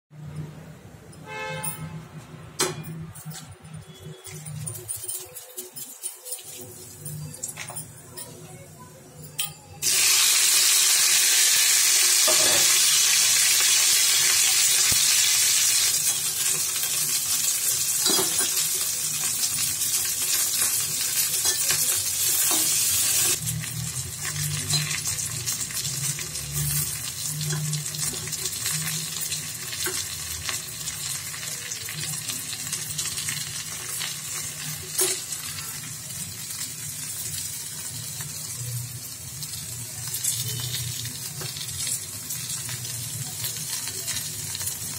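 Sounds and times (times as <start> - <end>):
vegetables sizzling in a pan: 9.8 - 44.9.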